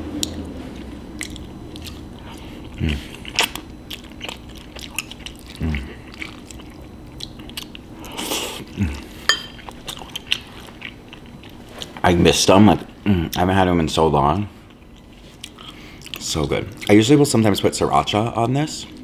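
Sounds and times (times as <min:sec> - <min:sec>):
chewing with wet mouth clicks: 0:00.2 - 0:08.8, 0:09.5 - 0:12.0, 0:14.7 - 0:17.0.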